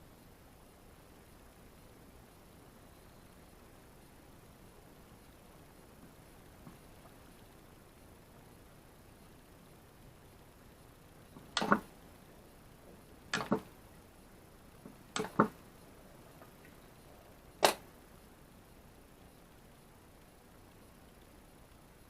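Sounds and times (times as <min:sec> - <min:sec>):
sharp clicks: 0:11.4 - 0:11.9, 0:13.3 - 0:13.8, 0:14.8 - 0:15.6, 0:17.6 - 0:17.9.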